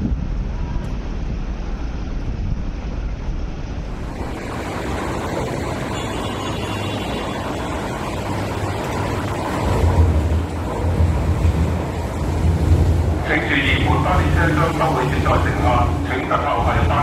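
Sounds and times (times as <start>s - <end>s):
low train rumble: 0.0s - 17.0s
electric train running noise: 3.8s - 17.0s.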